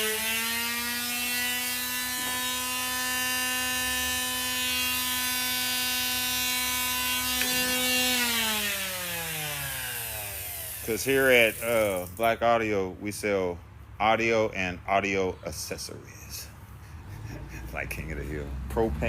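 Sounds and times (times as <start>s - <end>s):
power tool motor whining: 0.0s - 12.1s.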